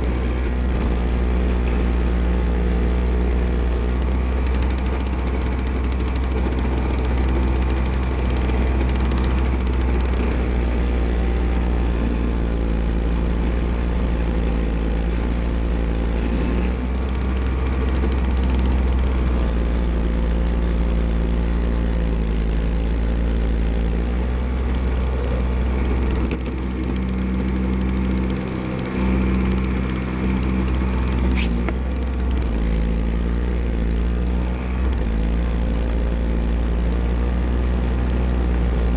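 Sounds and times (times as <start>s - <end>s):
snowblower engine running: 0.0s - 38.9s
sharp click: 3.9s - 10.2s, 25.8s - 32.6s.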